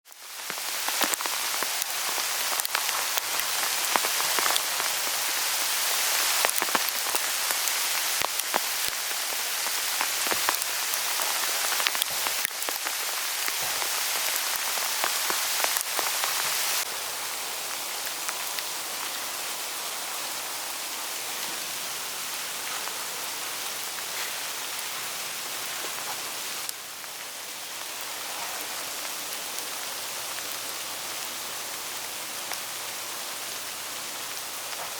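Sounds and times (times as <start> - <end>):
hail falling on leaves: 0.1 - 34.9.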